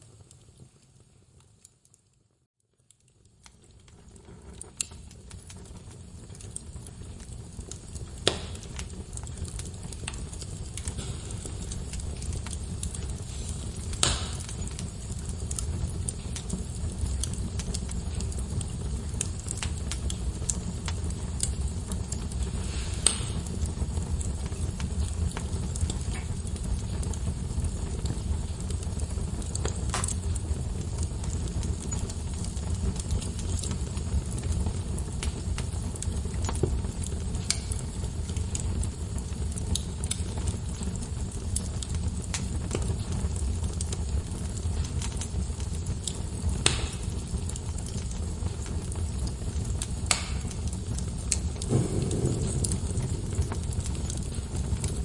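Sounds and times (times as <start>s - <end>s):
fire flames rumbling: 0.0s - 55.0s
fire snaps and pops: 0.0s - 55.0s.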